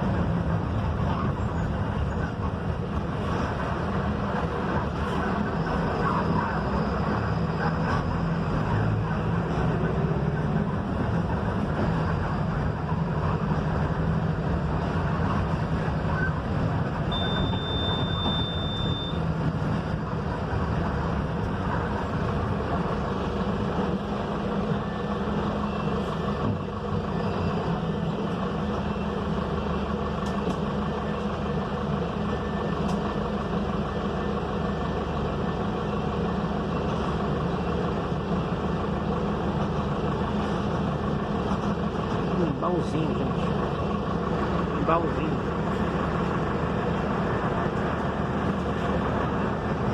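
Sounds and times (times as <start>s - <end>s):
bus diesel engine droning: 0.0s - 49.9s
short high beep: 17.1s - 19.3s.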